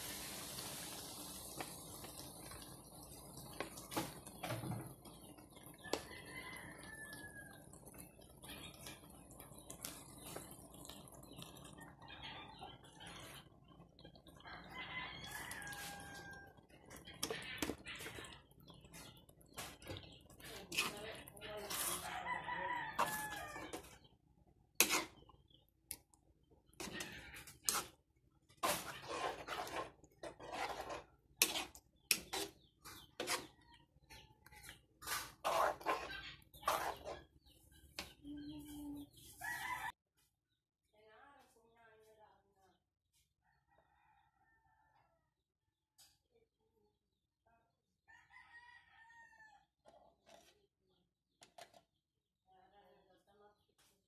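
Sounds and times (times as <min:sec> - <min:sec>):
sauce dripping into a pan: 0:00.0 - 0:21.4
metal spoon scraping a pan: 0:15.3 - 0:24.1, 0:24.7 - 0:25.6, 0:26.6 - 0:37.3, 0:50.1 - 0:50.6.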